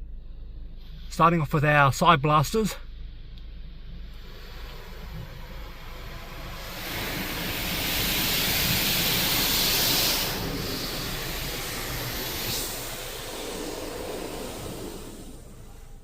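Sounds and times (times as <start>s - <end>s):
water jets spraying car: 3.0s - 16.0s.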